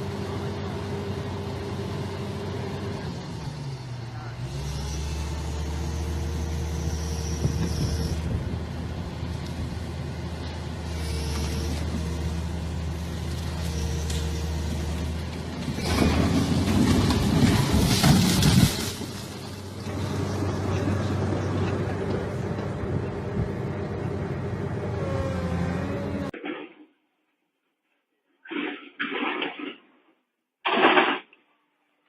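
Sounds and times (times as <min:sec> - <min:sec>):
heavy machine engine running: 0:00.0 - 0:26.4.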